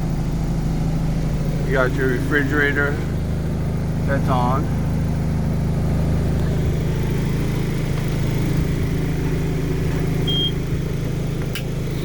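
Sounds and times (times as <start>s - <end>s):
motorhome machinery droning: 0.0s - 12.0s
short high beep: 10.3s - 10.6s.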